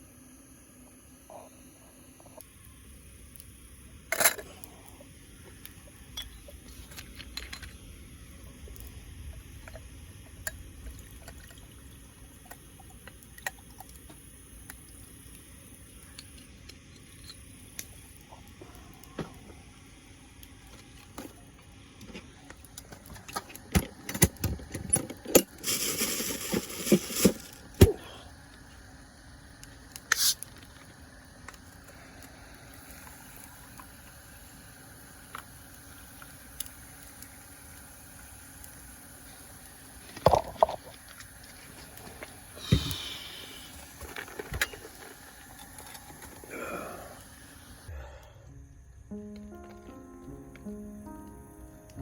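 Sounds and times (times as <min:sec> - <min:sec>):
liquid pouring hiss: 0:25.4 - 0:47.9.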